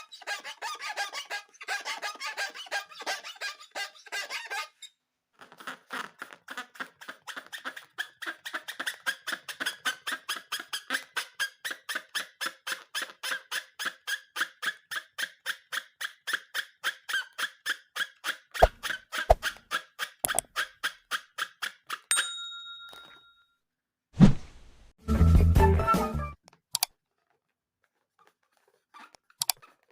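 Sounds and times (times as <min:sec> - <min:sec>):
rapid short squeaks: 0:00.0 - 0:22.0
ringing ding: 0:22.1 - 0:23.4.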